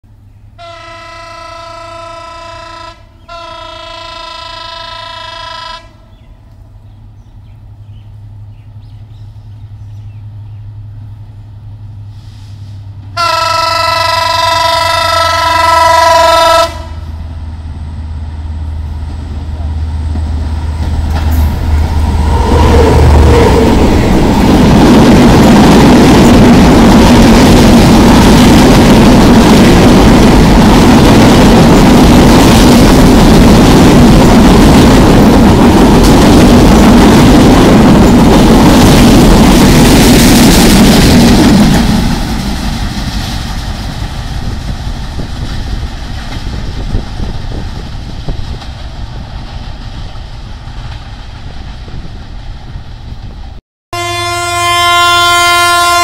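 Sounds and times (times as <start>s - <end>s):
locomotive horn blasts: 0.6s - 6.0s, 13.2s - 17.1s, 53.9s - 56.0s.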